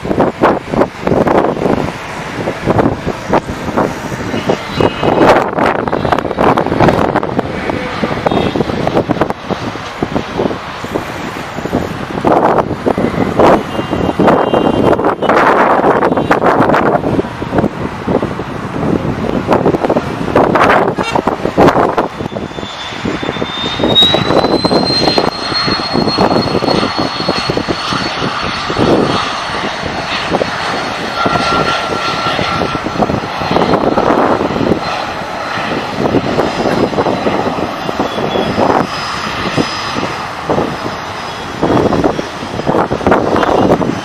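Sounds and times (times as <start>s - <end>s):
high turbine whine: 0.0s - 44.0s
jet engine roar: 0.0s - 44.0s.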